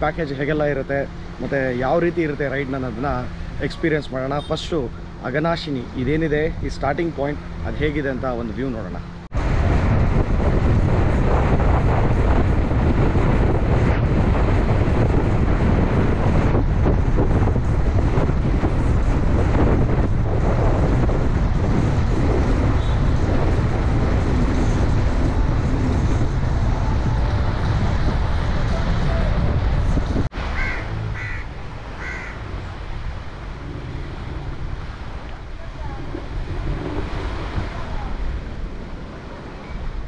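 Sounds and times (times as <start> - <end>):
wind noise on microphone: 9.2 - 40.0.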